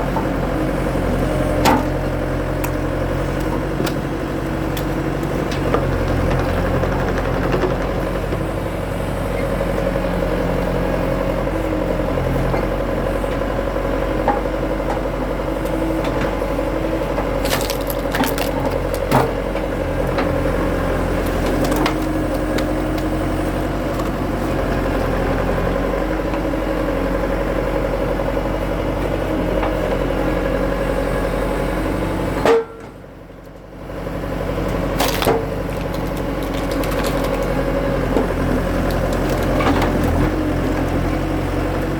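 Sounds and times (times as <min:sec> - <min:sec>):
skid steer engine whine: 0:00.0 - 0:41.9
wood splitting and cracking: 0:17.2 - 0:23.2, 0:34.7 - 0:41.2.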